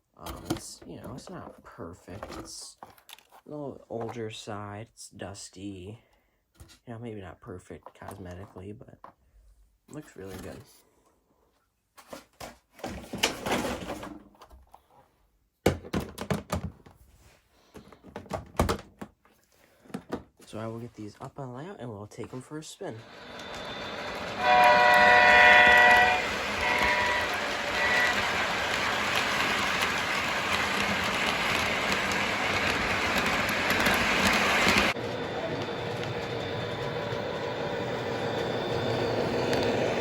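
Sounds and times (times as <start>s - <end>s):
model train rattling rumble: 23.1s - 40.0s
faint horn tone: 24.4s - 28.4s.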